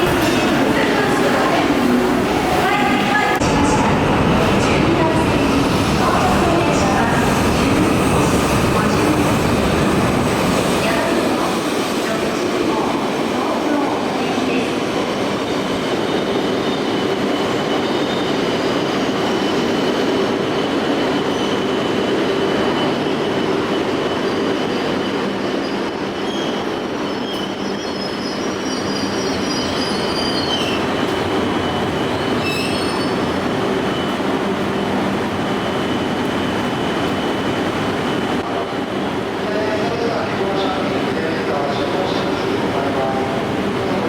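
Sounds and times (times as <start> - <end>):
train wheels rumbling on rail: 0.0 - 44.0
high wheel squeal: 21.1 - 34.9.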